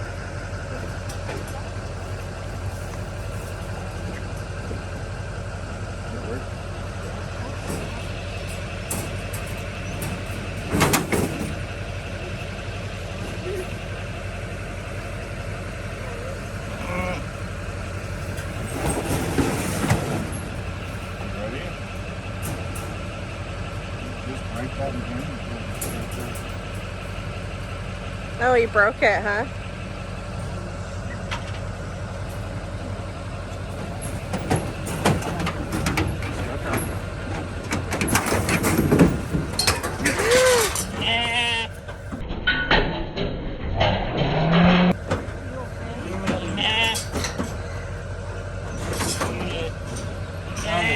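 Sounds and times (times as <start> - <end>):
vehicle engine idling: 0.0 - 42.3, 44.3 - 50.9
sharp knocks and rattles: 6.7 - 28.3, 33.4 - 50.9
sheep bleat: 16.6 - 17.5, 40.2 - 41.8, 46.0 - 47.1, 49.3 - 49.8, 50.6 - 50.9.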